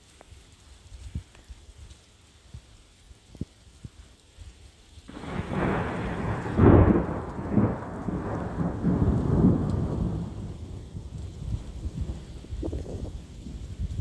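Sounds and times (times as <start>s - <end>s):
thunder rumbling: 5.1s - 14.0s.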